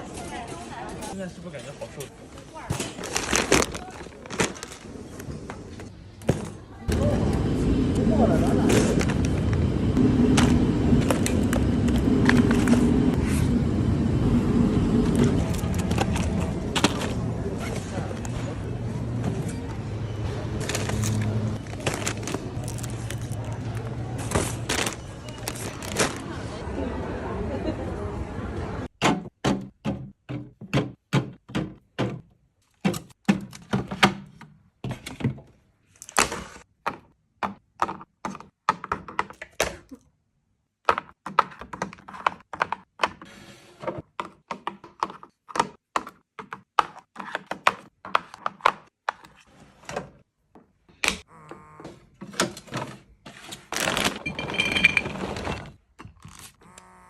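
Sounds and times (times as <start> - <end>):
items knocking and tapping: 29.0 - 35.4, 36.8 - 39.7, 40.8 - 43.2, 43.9 - 49.4.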